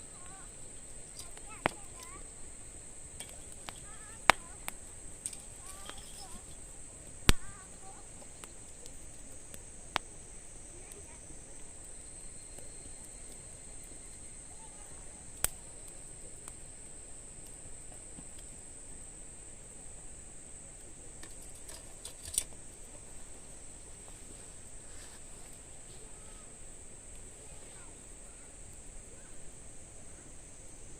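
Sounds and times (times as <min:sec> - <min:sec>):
high-pitched insect drone: 0:00.0 - 0:17.4
fire popping: 0:00.0 - 0:30.9
wood fire crackling: 0:00.0 - 0:30.9.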